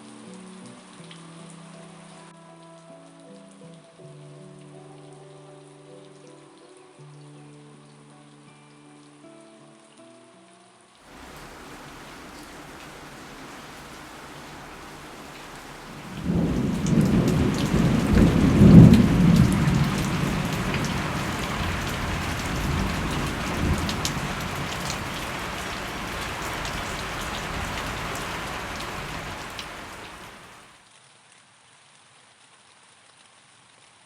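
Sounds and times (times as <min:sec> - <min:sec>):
steady rain: 0:00.0 - 0:09.2, 0:11.0 - 0:34.0
thunder rolling: 0:14.6 - 0:30.2.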